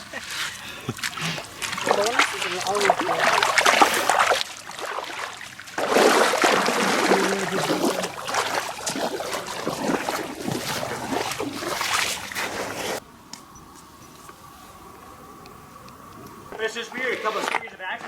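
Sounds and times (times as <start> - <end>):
water rushing in a stream: 0.0 - 13.3.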